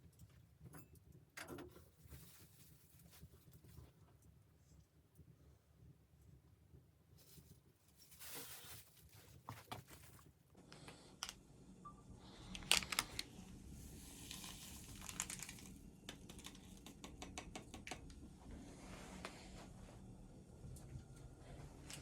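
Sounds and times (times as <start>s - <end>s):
rustling and crinkling: 1.6s - 4.8s, 6.8s - 11.0s, 12.5s - 17.0s
sharp clicks and taps: 16.1s - 18.2s.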